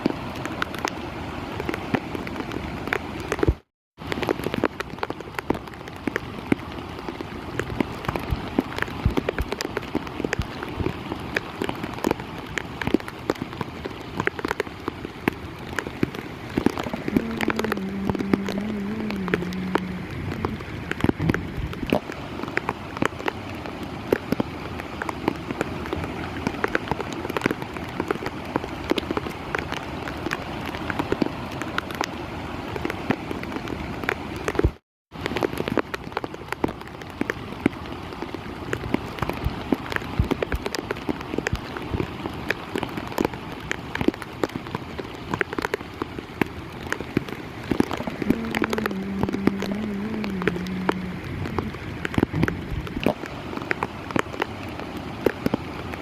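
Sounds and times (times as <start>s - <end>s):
heavy rain falling: 0.0s - 56.0s
wavering low tone: 17.0s - 21.6s, 48.2s - 52.6s.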